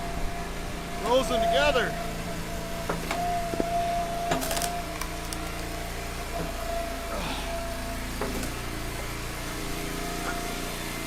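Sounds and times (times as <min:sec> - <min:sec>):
log splitter engine whine: 0:00.0 - 0:11.0
wood splitting crack: 0:04.3 - 0:05.9.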